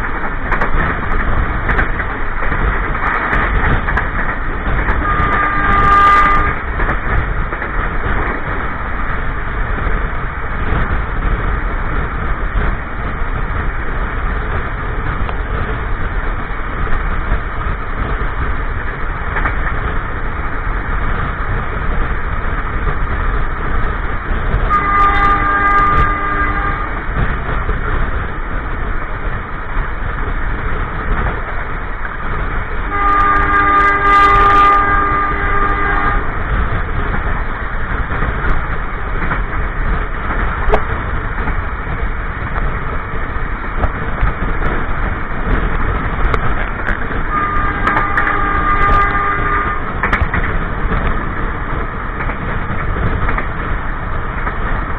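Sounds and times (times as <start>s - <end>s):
train wheels rumbling on track: 0.0s - 54.9s
locomotive horn blasts: 4.9s - 6.6s, 24.7s - 27.0s, 32.9s - 36.4s, 47.3s - 50.1s.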